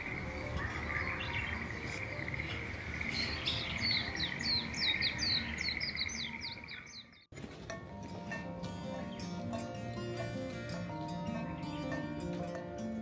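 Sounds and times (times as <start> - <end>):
songbird chirping: 0.0 - 7.3.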